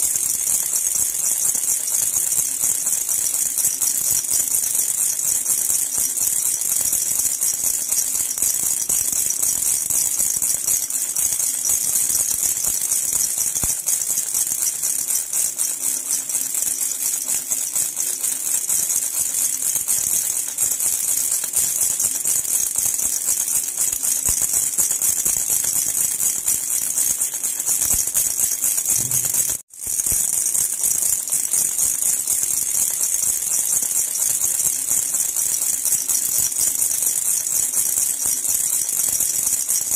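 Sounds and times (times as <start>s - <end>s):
baby rattle jingling: 0.0s - 39.9s.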